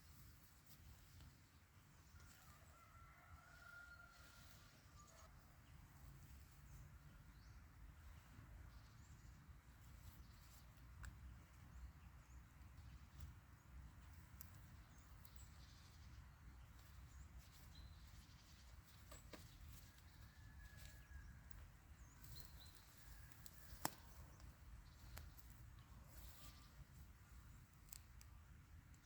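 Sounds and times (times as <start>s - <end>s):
small clicks: 27.6s - 29.0s.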